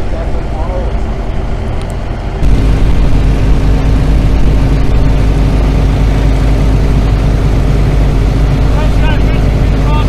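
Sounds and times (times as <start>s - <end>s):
water pump engine running: 0.0s - 10.0s.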